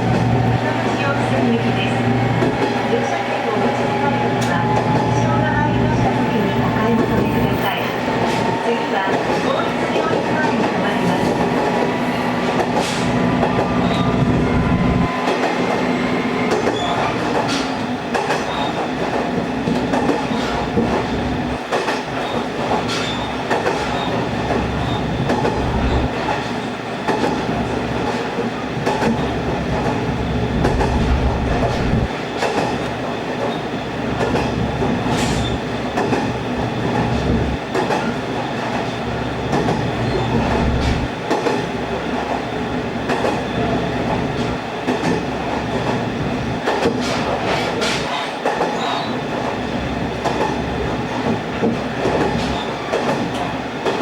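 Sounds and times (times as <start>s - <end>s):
rail joint clicks: 0.0s - 15.9s, 16.5s - 41.6s, 46.6s - 54.0s
train wheels rumbling on rail: 0.0s - 54.0s
diesel engine drone: 25.1s - 26.1s.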